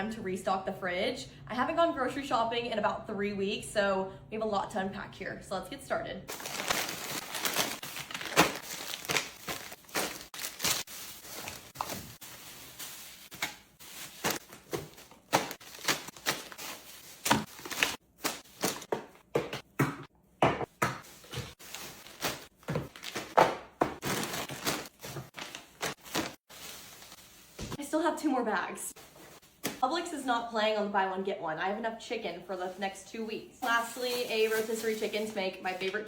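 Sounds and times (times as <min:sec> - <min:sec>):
bag rustling: 0:06.3 - 0:18.8
groceries knocking and thudding: 0:06.3 - 0:26.8.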